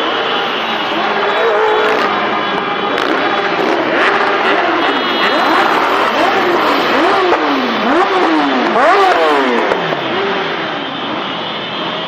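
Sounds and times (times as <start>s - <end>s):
motorcycle engines revving: 0.0s - 12.0s
street noise: 0.0s - 12.0s.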